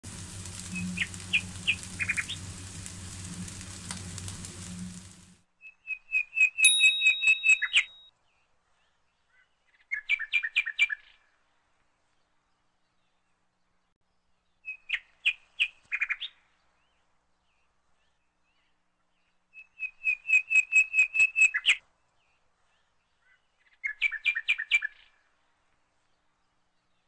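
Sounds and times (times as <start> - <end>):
bird chirping: 0.1 - 8.1.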